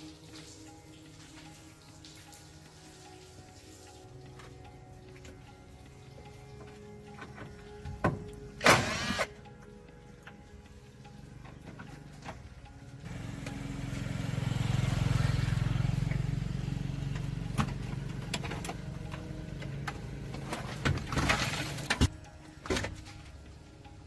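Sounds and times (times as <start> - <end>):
low motor hum: 9.4 - 22.4.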